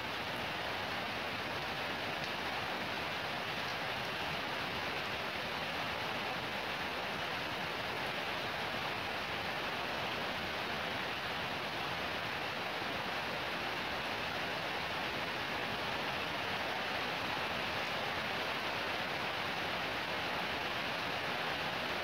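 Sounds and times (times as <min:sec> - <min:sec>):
heavy rain: 0:00.0 - 0:22.0.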